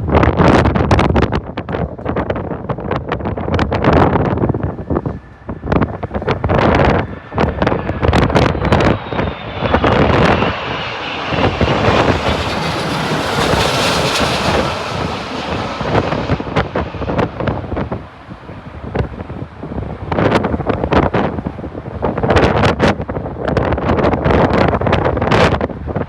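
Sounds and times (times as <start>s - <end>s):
wind buffeting microphone: 0.0s - 26.0s
jet airliner passing overhead: 1.5s - 26.0s
whine falling in pitch: 5.6s - 18.0s.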